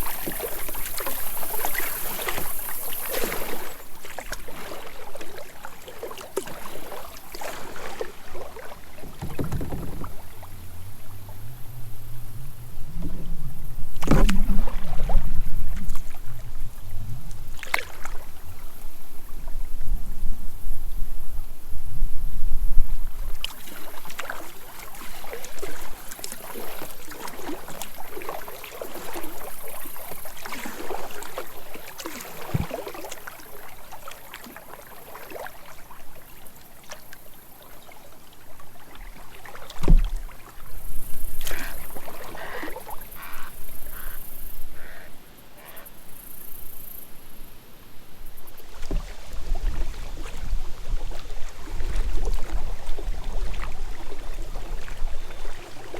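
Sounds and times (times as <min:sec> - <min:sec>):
water sloshing around kayak: 0:00.0 - 0:55.9
short knocks: 0:09.0 - 0:11.6
wind rumble on microphone: 0:09.0 - 0:23.8, 0:48.2 - 0:55.9.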